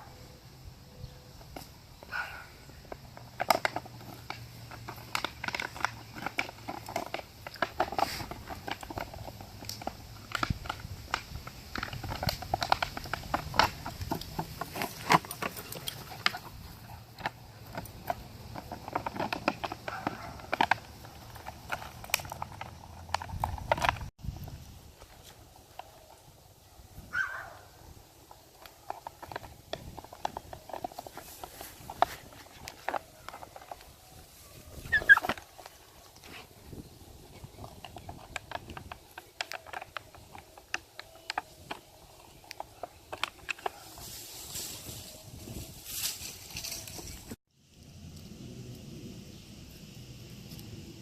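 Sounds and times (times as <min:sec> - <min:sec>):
puppies scuffling: 0:02.8 - 0:24.1, 0:28.4 - 0:47.4.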